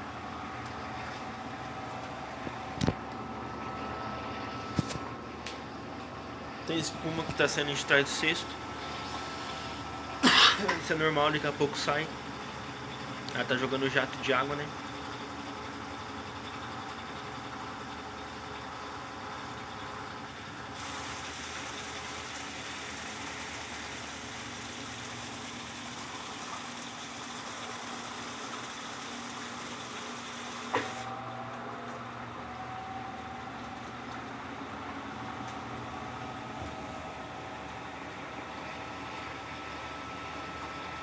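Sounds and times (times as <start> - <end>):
washing machine motor hum: 0.0 - 41.0
water spraying into washing machine: 20.8 - 31.1.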